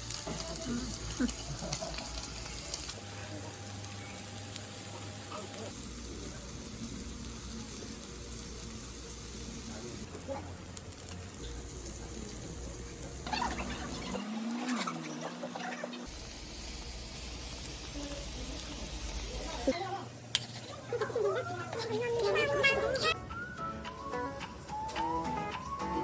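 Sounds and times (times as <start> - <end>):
meat sizzling on grill plate: 0.0 - 14.2, 16.0 - 19.8.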